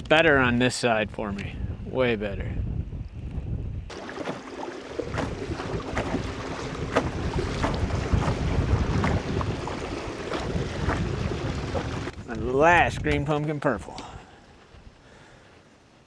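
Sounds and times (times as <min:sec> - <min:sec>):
wind buffeting microphone: 0:00.0 - 0:15.2
water washing against canoe hull: 0:03.9 - 0:13.9.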